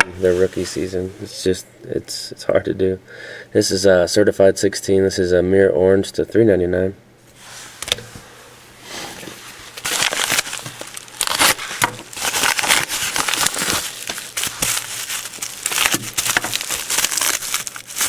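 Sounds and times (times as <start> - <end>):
paper and plastic packaging crinkling: 9.0 - 18.0.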